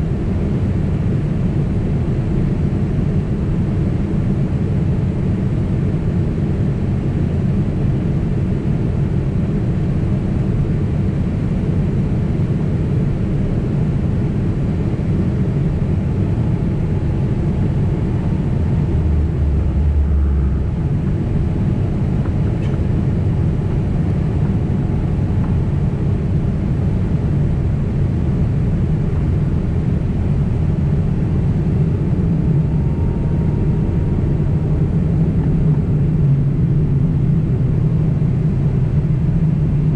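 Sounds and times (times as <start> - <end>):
jet engine rumble in cabin: 0.0 - 39.9
deeper hum: 14.9 - 39.8.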